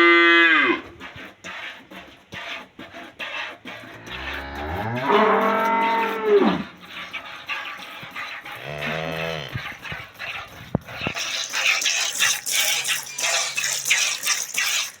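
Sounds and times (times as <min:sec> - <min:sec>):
cow mooing: 0:04.0 - 0:06.7, 0:08.5 - 0:09.8
rhythmic hissing squirts: 0:06.7 - 0:15.0.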